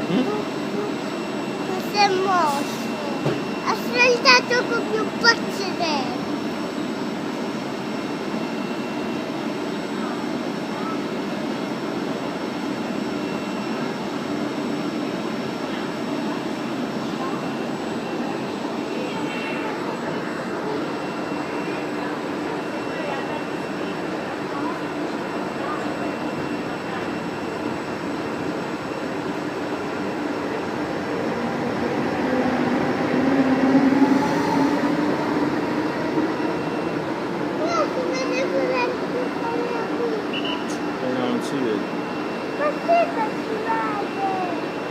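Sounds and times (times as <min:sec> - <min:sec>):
faint high whine: 0:13.2 - 0:44.9.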